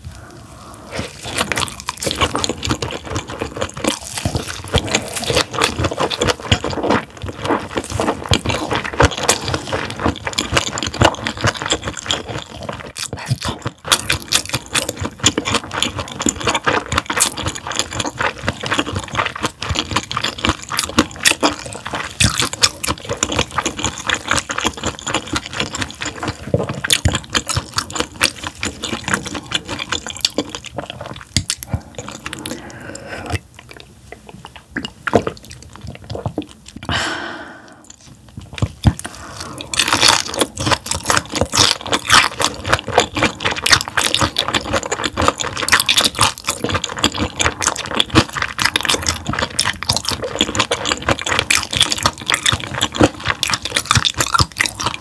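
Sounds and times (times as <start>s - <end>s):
wet chewing: 0.0s - 55.0s.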